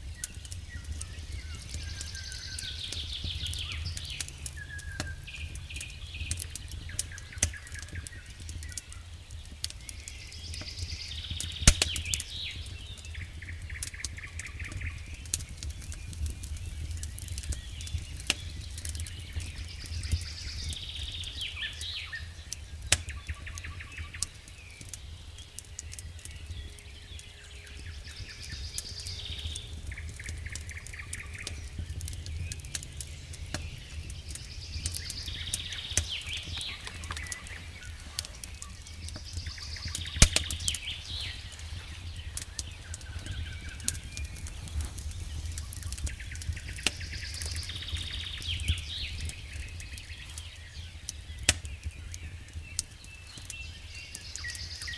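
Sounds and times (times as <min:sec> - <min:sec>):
steady low rumble: 0:00.0 - 0:08.4, 0:27.8 - 0:51.0
campfire crackling and popping: 0:00.0 - 0:54.9
songbird singing: 0:00.0 - 0:54.9.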